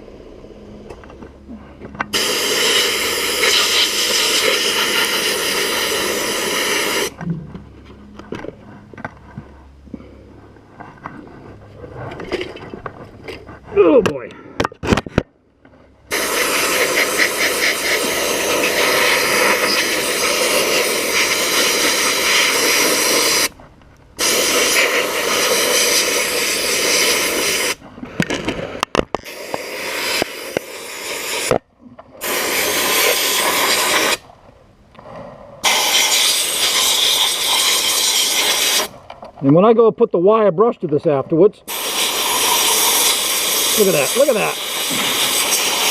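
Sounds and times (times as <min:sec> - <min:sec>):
sandblast gun hissing: 0:02.1 - 0:07.2, 0:16.1 - 0:23.6, 0:24.2 - 0:27.8, 0:29.2 - 0:31.6, 0:32.2 - 0:34.2, 0:35.6 - 0:39.0, 0:41.7 - 0:45.9.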